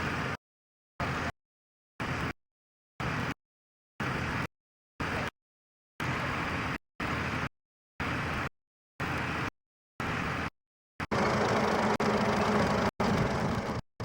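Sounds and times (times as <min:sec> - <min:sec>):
tractor engine: 0:11.1 - 0:13.8.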